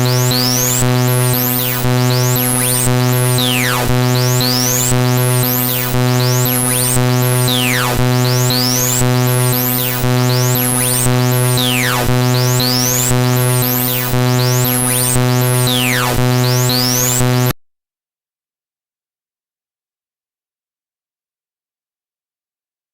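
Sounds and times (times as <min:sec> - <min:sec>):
harsh synthesized electronic tones: 0:00.0 - 0:17.5.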